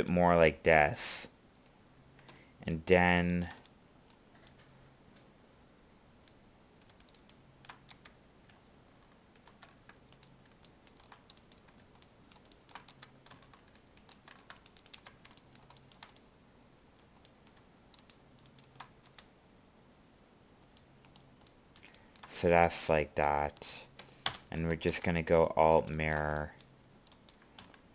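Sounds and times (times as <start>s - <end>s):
faint keyboard keys clicking: 6.2s - 16.3s, 17.0s - 19.3s, 23.2s - 27.9s.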